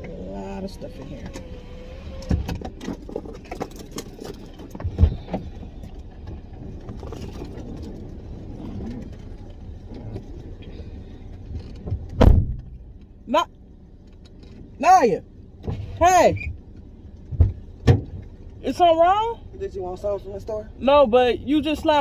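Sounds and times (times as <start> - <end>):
dull loud thump: 12.2 - 12.8.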